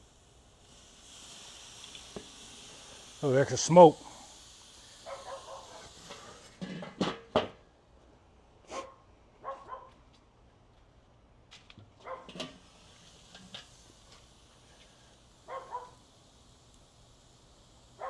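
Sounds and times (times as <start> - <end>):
dog barking: 5.0 - 5.9, 8.7 - 10.0, 12.0 - 12.3, 15.5 - 16.0.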